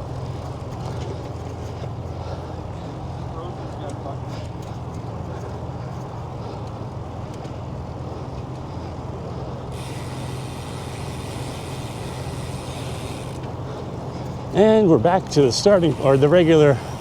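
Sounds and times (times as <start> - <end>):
road traffic rumble: 0.0 - 17.0
wind: 0.0 - 17.0.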